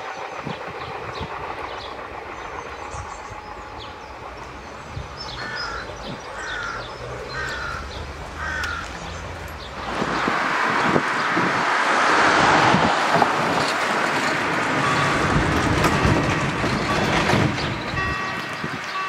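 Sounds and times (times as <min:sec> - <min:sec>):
rushing noise: 0:00.0 - 0:18.9
bird calling: 0:05.2 - 0:09.3.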